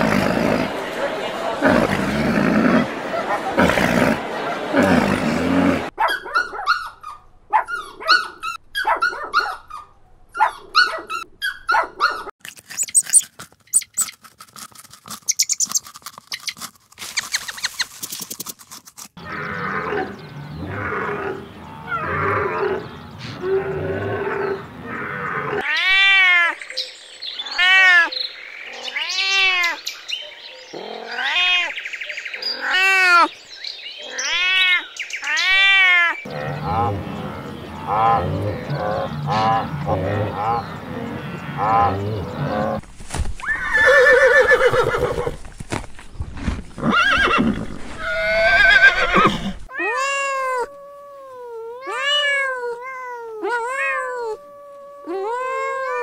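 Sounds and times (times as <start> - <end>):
cat meowing: 25.6 - 26.6, 49.7 - 56.0
rough animal calls: 34.0 - 42.8.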